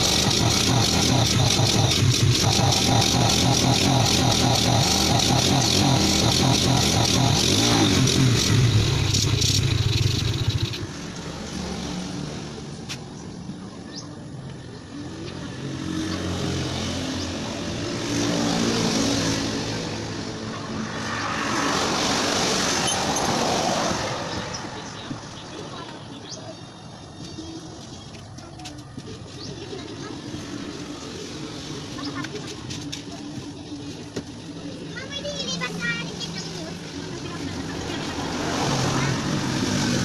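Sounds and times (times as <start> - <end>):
motorcycle engine running: 0.0 - 11.3.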